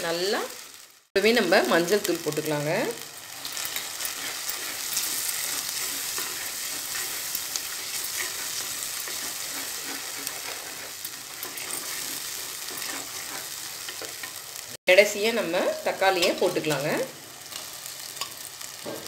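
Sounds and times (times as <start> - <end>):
onions sizzling in oil: 0.0 - 19.0
wooden spatula scraping pot: 3.4 - 14.4.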